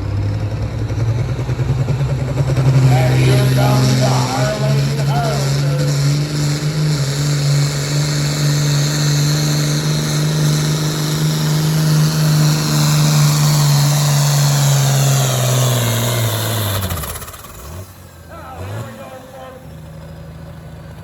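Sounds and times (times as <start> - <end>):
tractor engine under load: 0.0 - 21.0.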